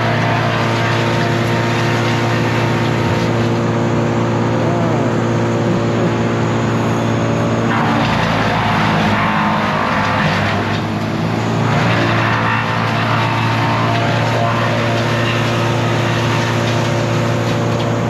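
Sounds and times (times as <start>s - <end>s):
harsh grinding noise: 0.0s - 18.0s
heavy machinery engine running: 0.0s - 18.0s.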